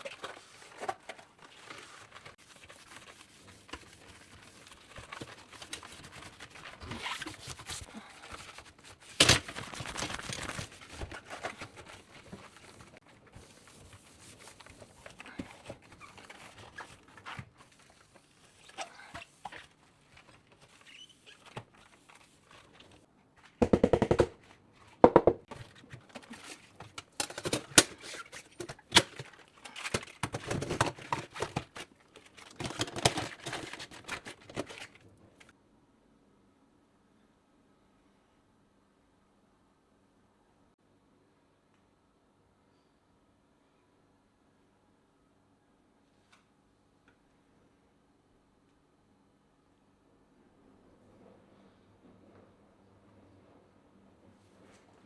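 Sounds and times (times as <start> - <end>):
soft rustling and shuffling: 54.2 - 55.0.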